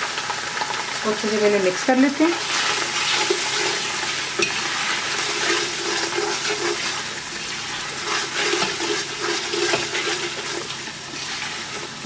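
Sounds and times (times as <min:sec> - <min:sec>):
spices sizzling in oil: 0:00.0 - 0:12.0
spatula stirring: 0:02.3 - 0:12.0.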